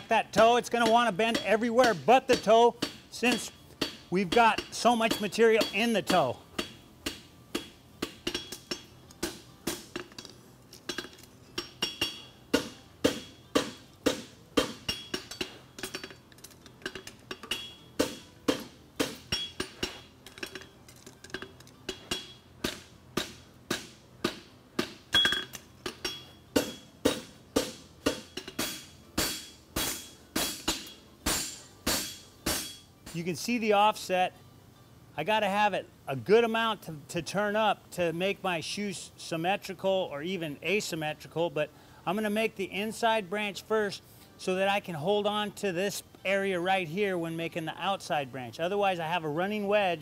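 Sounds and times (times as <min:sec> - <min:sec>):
hammer striking metal on anvil: 0:00.4 - 0:16.2, 0:16.8 - 0:33.3.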